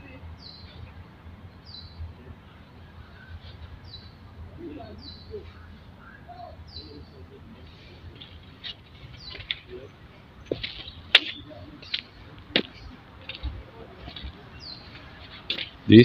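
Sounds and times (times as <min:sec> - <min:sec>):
bird calling: 0:01.6 - 0:16.0.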